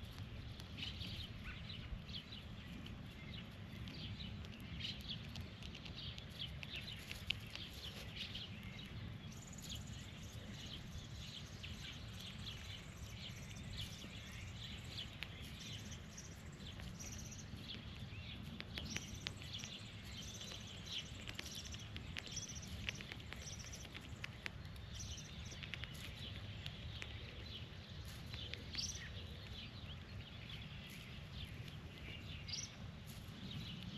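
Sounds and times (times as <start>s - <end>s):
small birds chirping: 0.0s - 33.9s
steady low rumble: 0.0s - 33.9s.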